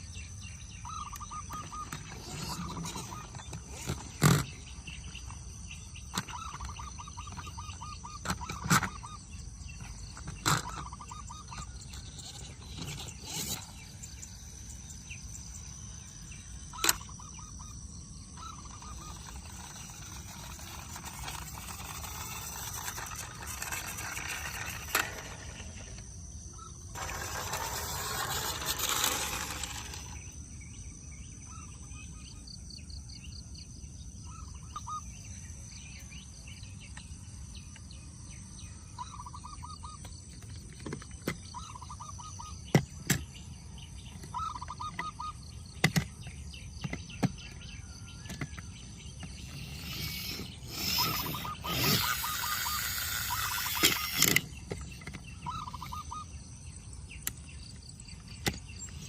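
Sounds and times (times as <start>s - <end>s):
chirping trills: 0.0s - 32.5s, 49.4s - 59.0s.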